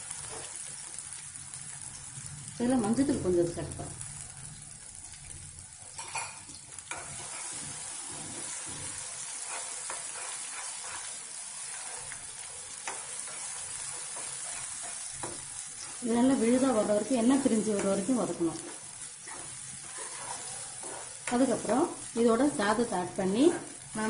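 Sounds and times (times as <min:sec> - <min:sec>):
paste sizzling in oil: 0:00.0 - 0:24.0
spatula stirring: 0:06.0 - 0:24.0
spatula tapping pan: 0:12.8 - 0:16.0.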